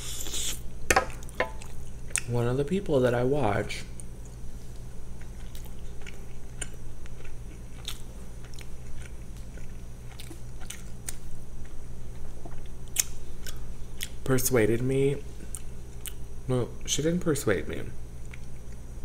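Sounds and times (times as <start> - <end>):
person chewing food: 0.0 - 2.3, 4.0 - 14.2, 15.4 - 16.2, 18.2 - 18.9.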